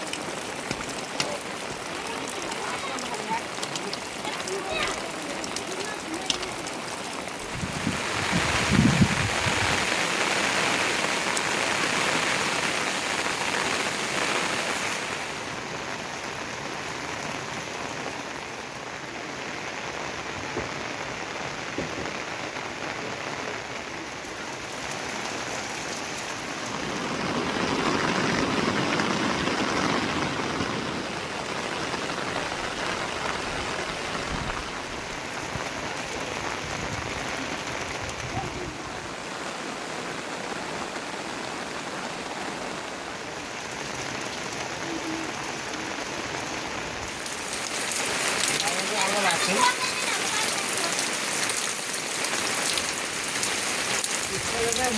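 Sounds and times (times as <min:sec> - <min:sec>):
heavy rain falling: 0:00.0 - 0:54.9.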